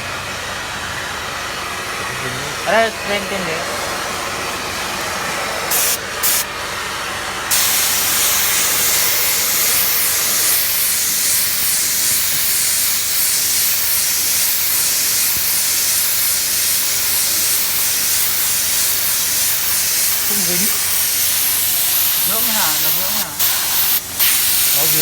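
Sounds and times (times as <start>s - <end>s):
spray gun hissing: 2.5s - 6.5s, 7.5s - 25.0s.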